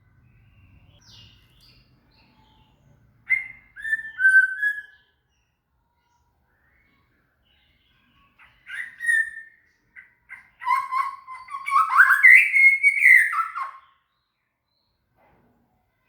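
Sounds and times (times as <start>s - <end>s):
songbird whistling: 3.2s - 5.2s, 8.4s - 14.1s.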